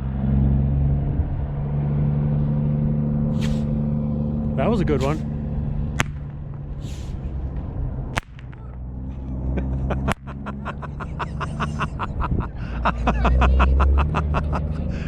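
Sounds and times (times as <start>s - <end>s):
steady low rumble: 0.0s - 15.0s
crackling pops: 6.0s - 6.4s, 8.1s - 8.8s.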